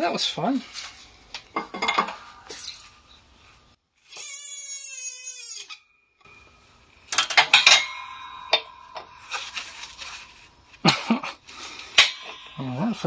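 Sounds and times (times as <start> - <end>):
metal tools clinking on steel: 0.7 - 3.0, 7.1 - 13.0.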